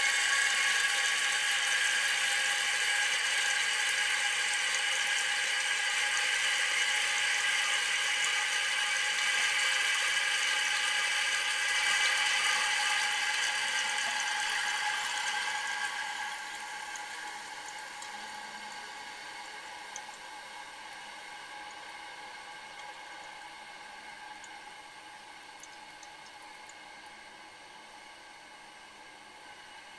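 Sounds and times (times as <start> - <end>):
toilet fill valve hissing: 0.0 - 26.8.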